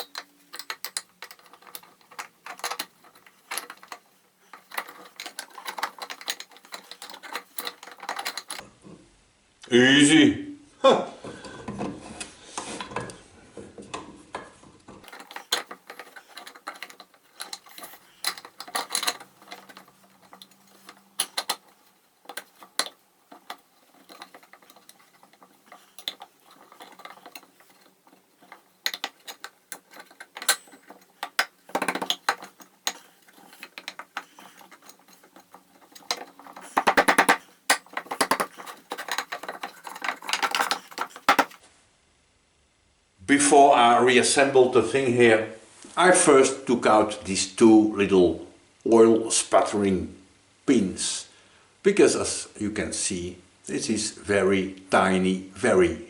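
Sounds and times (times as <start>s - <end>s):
metal tools clinking: 0.0s - 8.6s, 15.0s - 41.6s.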